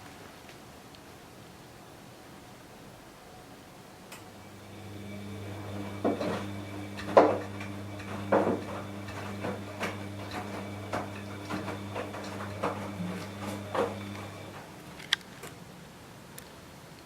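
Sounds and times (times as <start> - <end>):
washing machine running: 4.2 - 15.0
drum knocking: 5.6 - 14.1.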